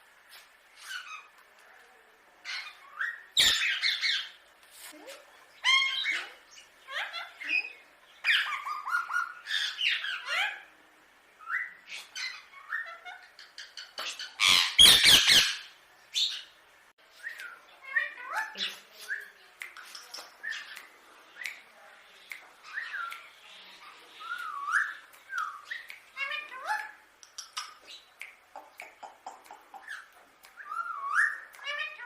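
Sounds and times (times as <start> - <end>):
parakeet chattering calls: 2.5 - 4.4, 5.6 - 10.6, 11.9 - 16.5
parakeet harsh squawks: 14.0 - 15.7.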